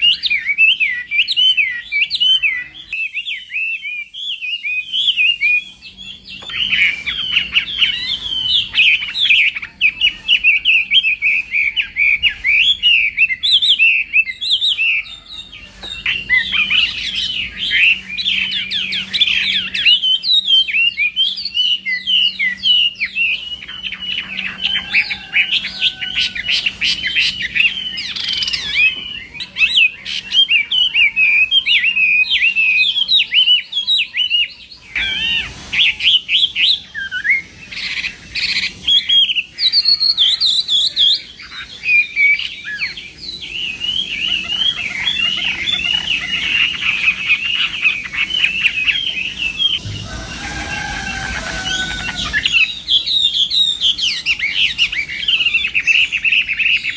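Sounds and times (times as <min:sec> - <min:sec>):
bird singing whistles and trills: 0:00.0 - 0:56.9.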